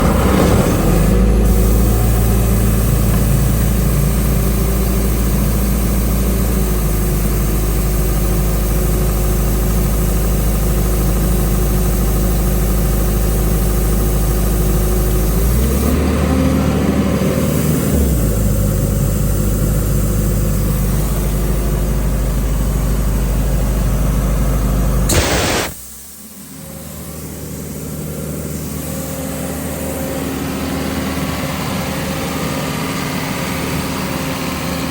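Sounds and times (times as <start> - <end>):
diesel engine running: 0.0 - 34.9
short sharp burst: 25.1 - 26.0.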